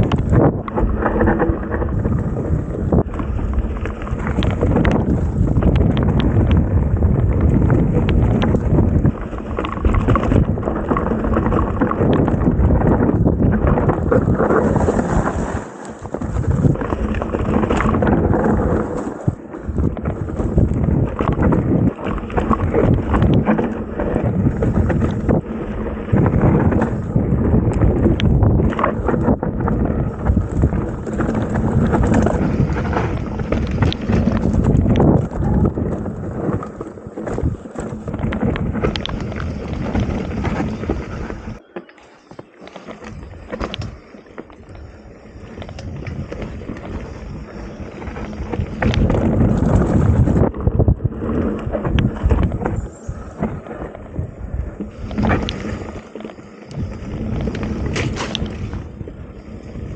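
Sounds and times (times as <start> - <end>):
bike tyres and frame rattling: 0.0 - 59.9
wind rushing over microphone: 0.0 - 59.9.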